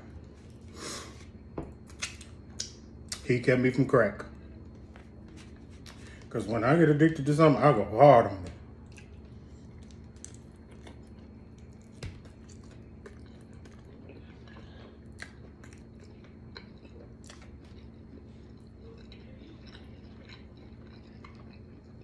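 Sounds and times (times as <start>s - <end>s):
steady low hum: 0.0s - 22.0s
person chewing food: 8.8s - 22.0s.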